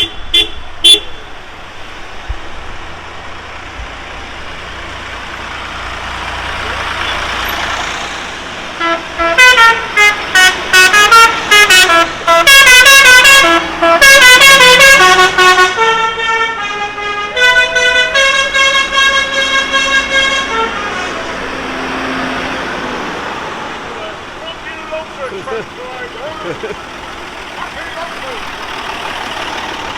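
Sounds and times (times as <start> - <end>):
musical vehicle horn: 0.0 - 1.4, 8.8 - 22.1.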